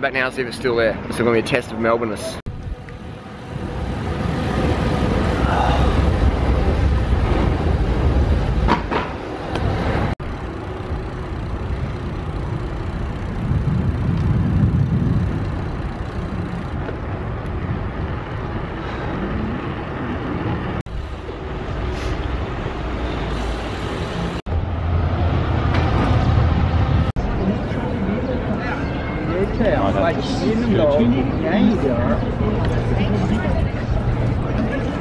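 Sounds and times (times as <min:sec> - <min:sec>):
road vehicle rumble: 0:02.4 - 0:35.0.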